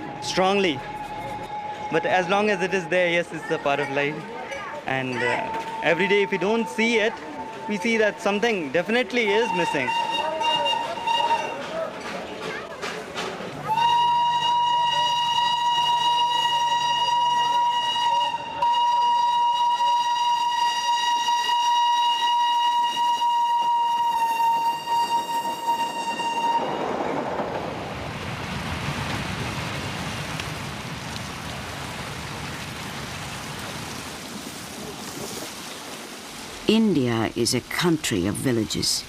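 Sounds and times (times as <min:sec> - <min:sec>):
train whistle: 0:00.0 - 0:03.1, 0:05.4 - 0:06.7, 0:09.3 - 0:11.8, 0:13.7 - 0:27.0
train rattling past: 0:00.0 - 0:04.4, 0:05.1 - 0:30.9.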